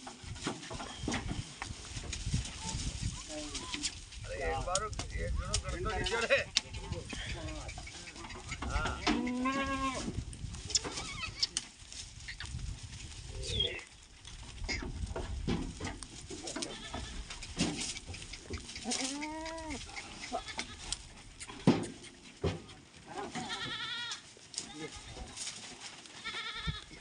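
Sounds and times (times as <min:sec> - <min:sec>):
goats bleating: 0:07.2 - 0:10.1, 0:16.4 - 0:17.4, 0:18.8 - 0:20.9, 0:23.1 - 0:25.4, 0:26.1 - 0:27.0
knocks and clattering: 0:14.8 - 0:19.0.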